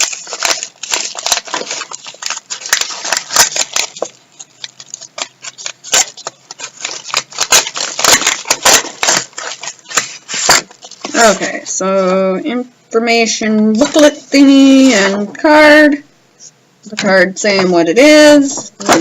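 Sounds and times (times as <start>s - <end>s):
paper packaging rustling: 0.0s - 12.1s.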